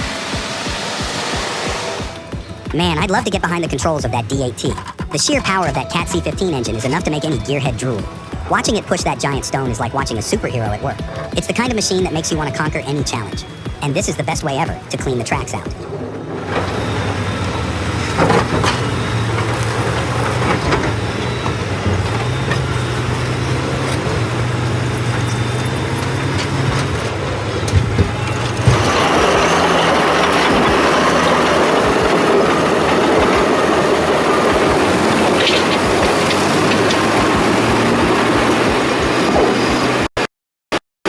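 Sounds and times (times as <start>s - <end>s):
loud rushing noise: 0.0s - 3.1s
machinery knocks and clanks: 0.0s - 40.0s
heavy machinery engine hum: 0.0s - 40.1s.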